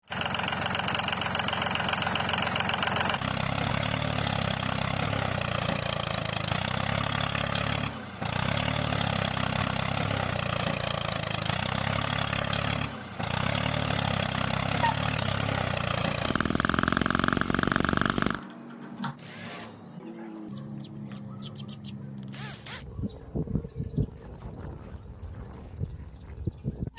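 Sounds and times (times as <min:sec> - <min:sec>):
miniature engine running: 0:15.6 - 0:18.4
loud high whine: 0:16.2 - 0:18.4.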